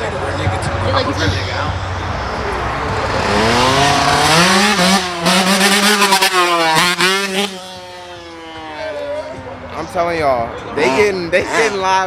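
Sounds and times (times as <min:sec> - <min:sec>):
dirt bike engine revving: 0:01.1 - 0:09.1.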